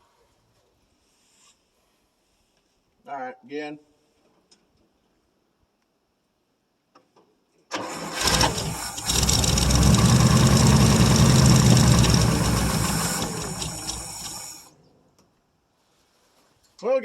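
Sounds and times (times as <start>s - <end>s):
starter motor cranking: 7.7s - 14.7s
pickup engine running: 7.8s - 14.7s.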